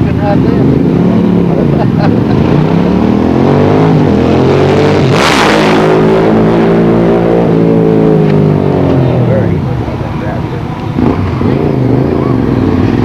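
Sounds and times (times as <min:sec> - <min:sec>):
loud rasping engine blast: 0:00.0 - 0:09.7
motorcycles revving past: 0:00.0 - 0:13.0.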